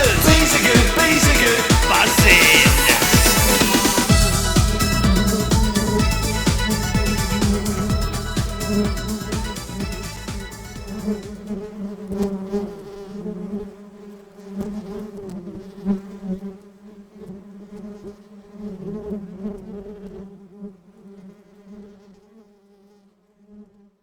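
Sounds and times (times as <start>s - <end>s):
bees buzzing: 0.0s - 11.8s.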